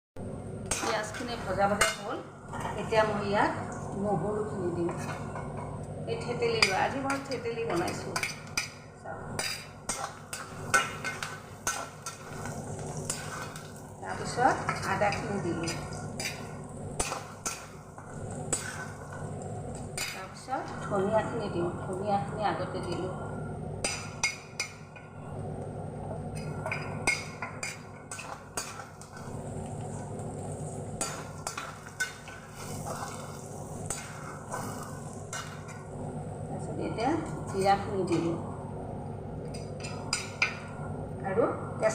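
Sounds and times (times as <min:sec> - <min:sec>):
onions sizzling in oil: 0:00.5 - 0:25.4, 0:26.2 - 0:40.9
metal spatula scraping a wok: 0:09.4 - 0:19.2, 0:27.1 - 0:35.8.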